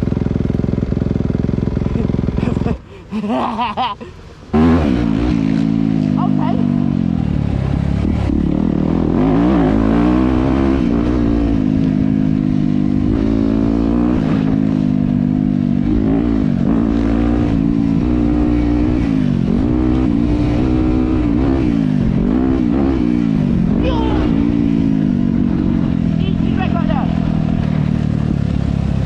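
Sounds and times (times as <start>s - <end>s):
dirt bike engine revving: 4.5s - 29.0s
wind and ground rumble: 17.5s - 29.0s.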